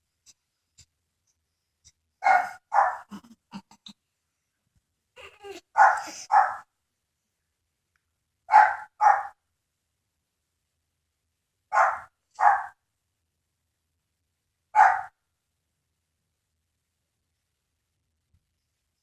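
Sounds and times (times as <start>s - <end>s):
dog barking: 2.2s - 3.2s, 5.5s - 6.7s, 8.5s - 9.4s, 11.7s - 12.8s, 14.8s - 15.2s.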